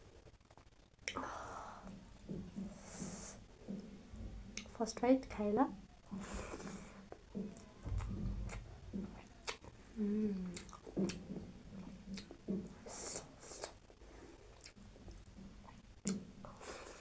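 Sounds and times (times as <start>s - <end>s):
person chewing: 6.0s - 17.0s
person humming: 9.9s - 10.7s
wet mouth clicks and smacks: 10.4s - 13.8s, 14.5s - 16.6s.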